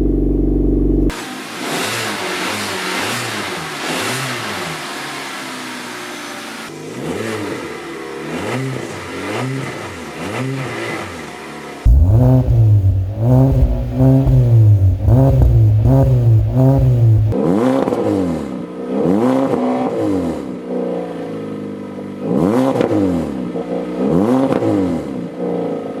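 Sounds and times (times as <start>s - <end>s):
car exhaust revving: 11.8s - 17.7s.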